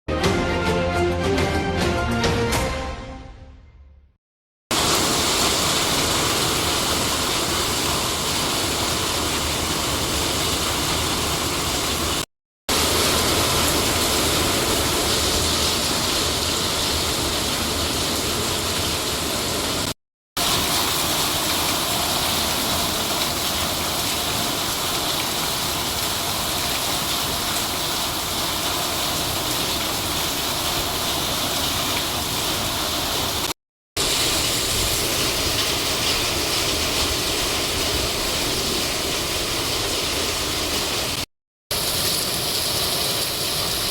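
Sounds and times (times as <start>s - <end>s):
heavy rain pouring: 4.7s - 43.9s.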